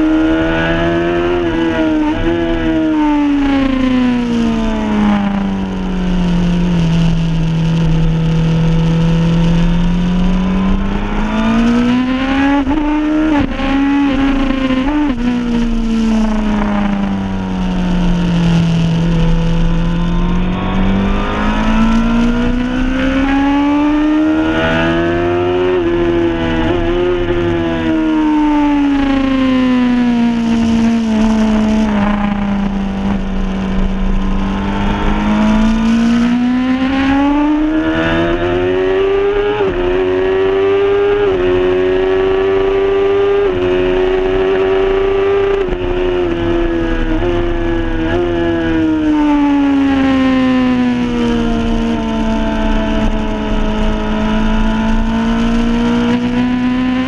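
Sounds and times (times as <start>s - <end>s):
motorcycle engine revving: 0.0s - 57.0s
wind noise: 0.0s - 57.0s.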